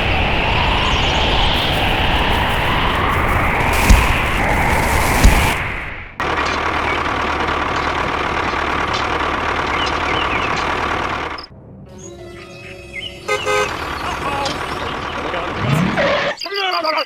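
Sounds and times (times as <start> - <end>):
engine-like running noise: 0.0 - 11.5.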